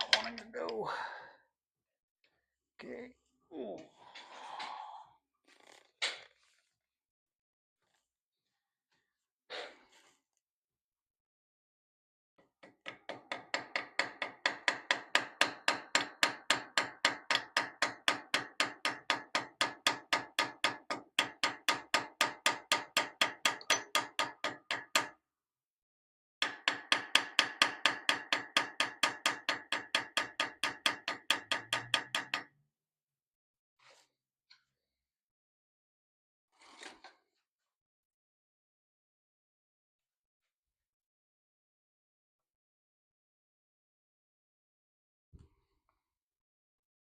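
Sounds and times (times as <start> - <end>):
small hammer tapping metal: 0.0 - 0.8, 12.6 - 25.1, 26.4 - 32.5.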